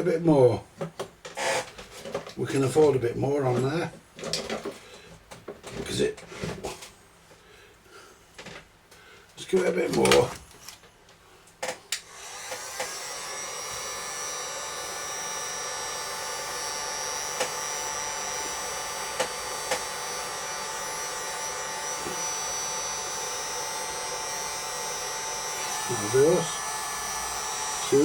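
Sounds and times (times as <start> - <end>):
heat gun fan whining: 11.5 - 28.0.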